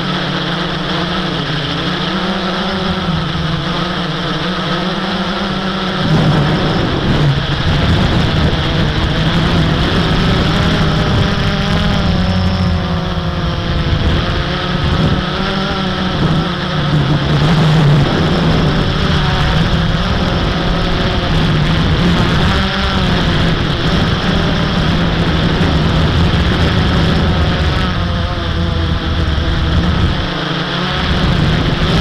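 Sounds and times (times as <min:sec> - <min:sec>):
quadcopter propellers buzzing: 0:00.0 - 0:32.0.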